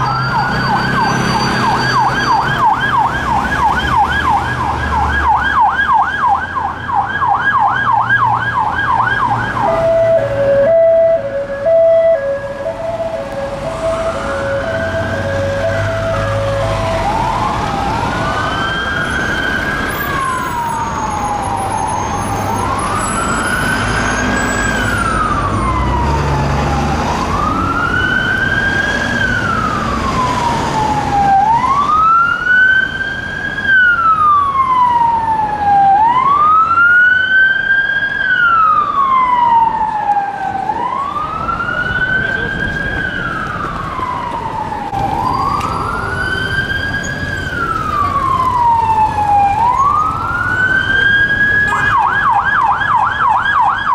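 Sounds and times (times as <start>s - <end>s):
two-note hi-lo siren: 0.0s - 5.5s, 8.9s - 28.4s
siren wailing: 0.0s - 53.9s
traffic rumble: 0.0s - 53.9s.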